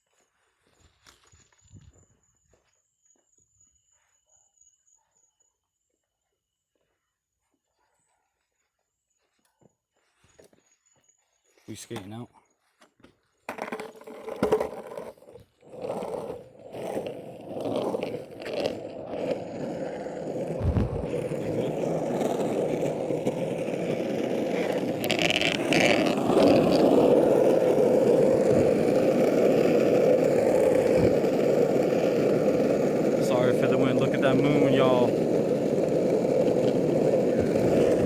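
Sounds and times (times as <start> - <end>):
longboard wheels rolling on pavement: 13.4 - 38.0
wind on microphone: 20.6 - 21.4.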